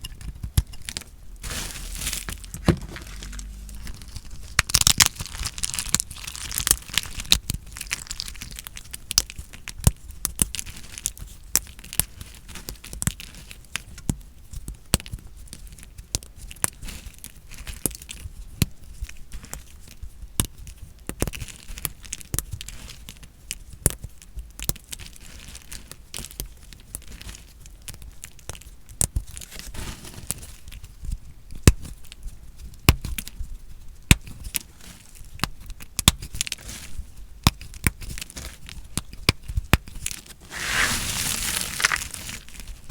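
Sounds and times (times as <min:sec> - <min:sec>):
knife cutting dry soap: 0:40.4 - 0:42.4.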